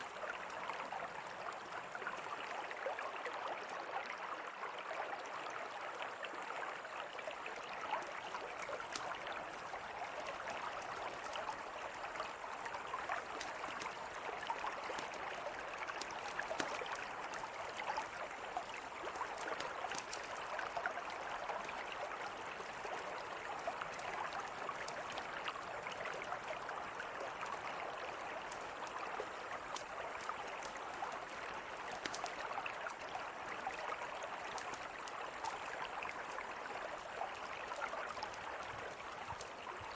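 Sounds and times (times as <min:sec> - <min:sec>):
river flowing: 0:00.0 - 0:39.9
campfire crackling and popping: 0:08.0 - 0:26.7, 0:27.4 - 0:33.1.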